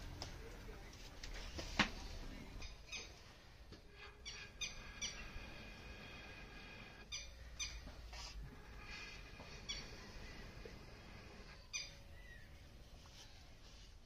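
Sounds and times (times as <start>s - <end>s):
birds chirping: 2.4s - 8.0s, 8.8s - 12.8s.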